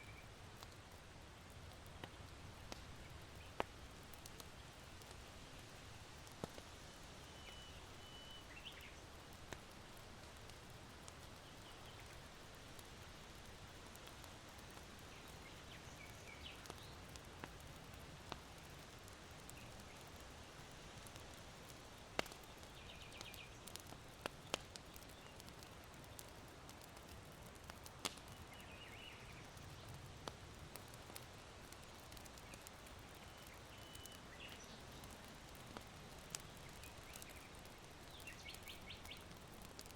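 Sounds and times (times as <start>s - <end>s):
charcoal crackling and popping: 0.0s - 39.9s
low steady wind: 0.0s - 39.9s
small birds chirping: 7.2s - 9.2s, 11.1s - 12.4s, 14.9s - 17.7s, 18.6s - 20.3s, 21.2s - 39.9s.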